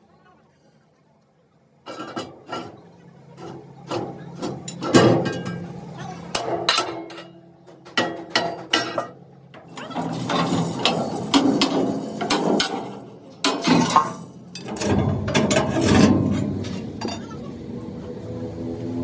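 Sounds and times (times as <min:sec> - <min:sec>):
metal rattling and clattering: 0:01.9 - 0:17.3
metal knocks and clicks: 0:06.3 - 0:17.3.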